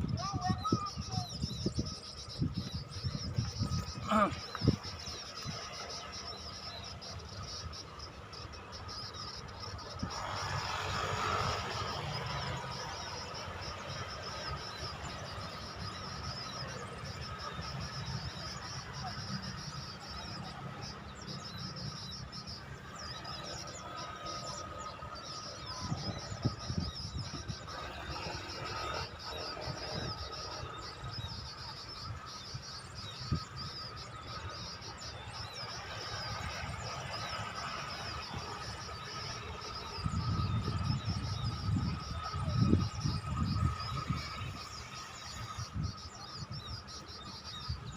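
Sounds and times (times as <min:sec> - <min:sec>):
insects chirping: 0:00.0 - 0:47.9
wind rumble on microphone: 0:00.0 - 0:47.9.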